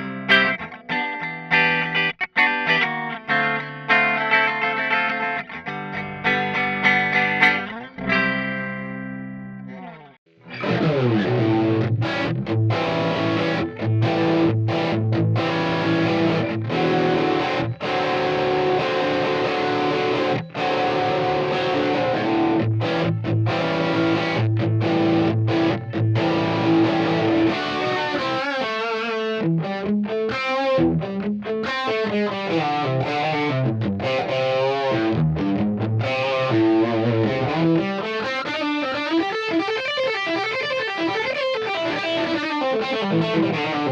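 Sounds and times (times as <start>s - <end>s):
distorted electric guitar: 0.0s - 43.9s.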